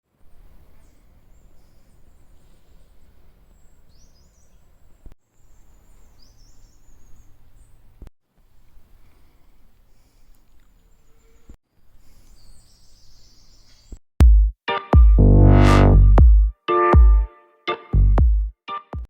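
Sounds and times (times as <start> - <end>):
songbirds twittering and trilling: 0.3 - 8.1, 9.0 - 14.0.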